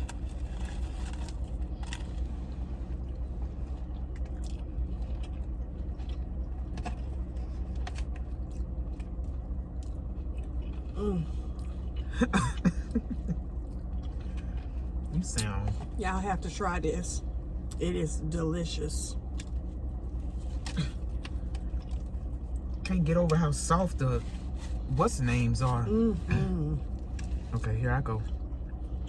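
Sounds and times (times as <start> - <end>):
person chewing crunchy food: 0.0 - 15.9, 19.2 - 23.4
steady low hum: 0.0 - 29.0.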